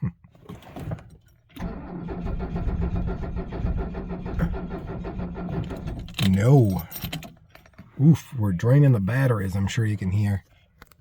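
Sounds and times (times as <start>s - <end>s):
starter cranking diesel engine: 1.6s - 6.3s.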